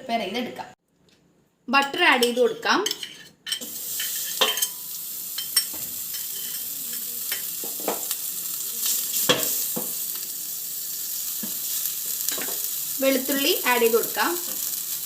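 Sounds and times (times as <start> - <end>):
butter sizzling in a pan: 3.6 - 15.0
utensil scraping a pan: 5.4 - 8.1.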